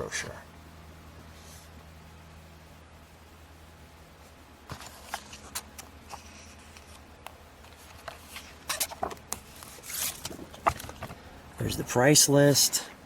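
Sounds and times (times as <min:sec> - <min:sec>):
pages turning and rustling: 0:04.7 - 0:11.2.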